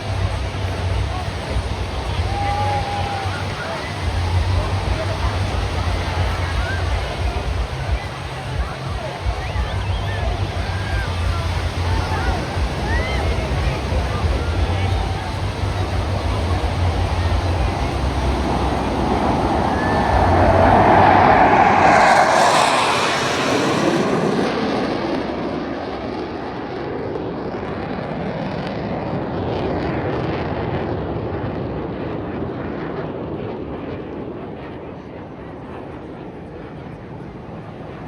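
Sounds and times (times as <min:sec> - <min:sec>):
jet flying past: 0:00.0 - 0:38.0.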